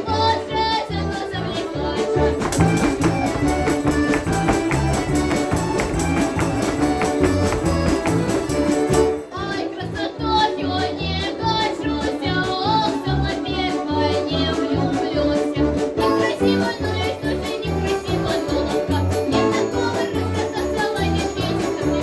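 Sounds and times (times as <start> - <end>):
folk instrument orchestra playing: 0.0 - 22.0
bass beat: 2.2 - 9.2.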